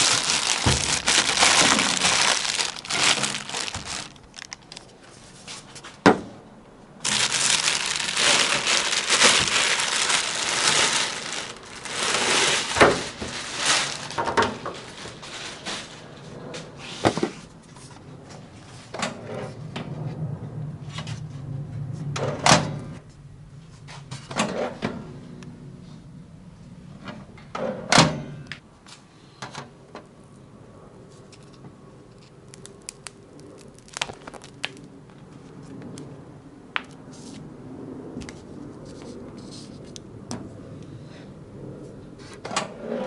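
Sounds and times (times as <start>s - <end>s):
packaging crinkling: 0.0s - 5.0s, 7.0s - 16.0s, 32.2s - 35.2s.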